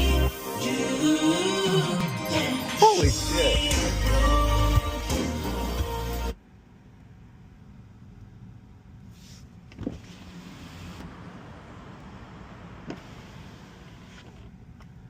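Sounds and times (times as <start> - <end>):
road and tyre noise in car: 6.4 - 15.0.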